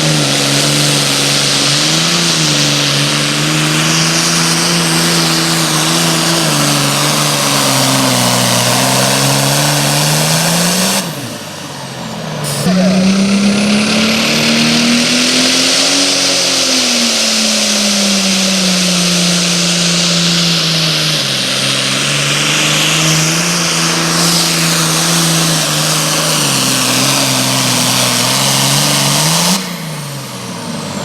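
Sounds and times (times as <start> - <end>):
engine at full throttle: 0.0 - 31.0
loud hiss: 12.4 - 30.1.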